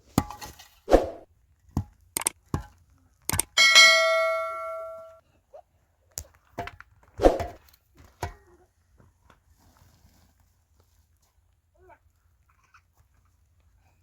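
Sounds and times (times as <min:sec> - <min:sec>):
metal object ringing: 0:03.3 - 0:05.2.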